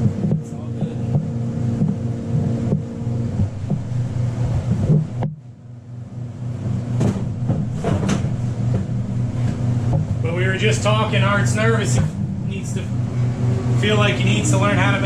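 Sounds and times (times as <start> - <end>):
low machine hum: 0.0 - 15.0
short knocks: 7.0 - 10.3.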